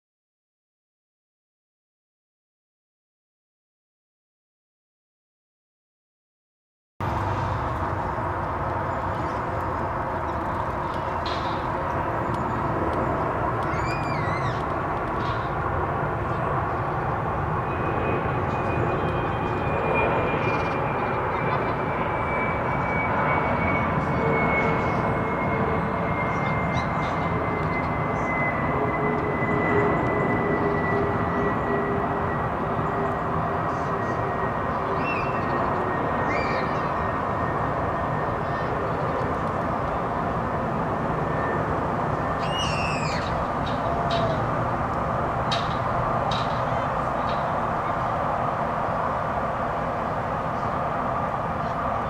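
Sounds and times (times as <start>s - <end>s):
jet engines passing overhead: 7.0s - 52.0s
bird call: 13.6s - 15.4s, 35.0s - 35.6s, 36.3s - 36.9s, 42.4s - 44.5s
bird chirps: 13.7s - 14.6s, 42.4s - 43.4s.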